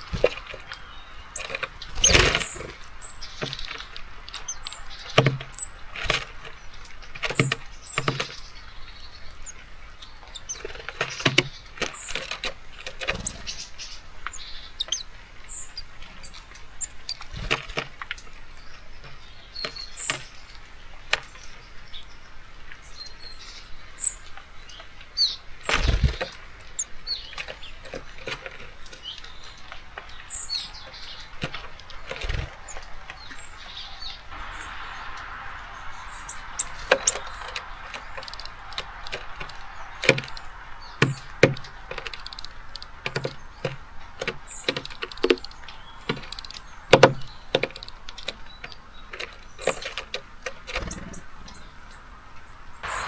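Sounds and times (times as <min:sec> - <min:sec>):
birds pecking at feeder: 0:00.0 - 0:53.0
faint rain hiss: 0:28.7 - 0:49.2
fluttering wingbeats: 0:31.4 - 0:33.3.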